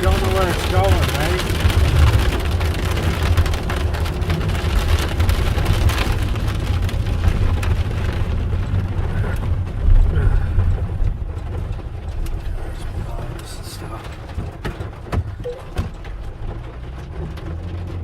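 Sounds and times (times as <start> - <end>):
rain on a car: 0.0 - 18.0
wind and road noise rumble: 0.0 - 18.0.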